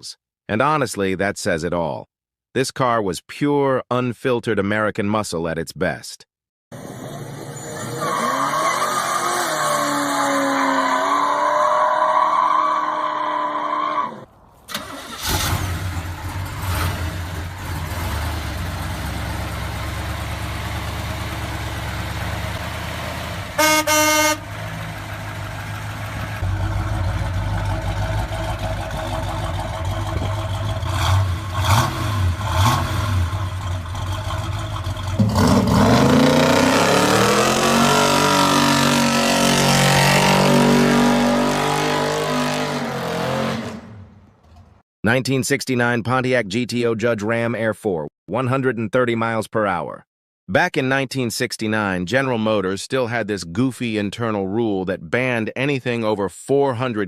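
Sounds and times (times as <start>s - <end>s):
vee eight engine rumbling: 14.7s - 36.3s
car horn: 23.5s - 24.8s.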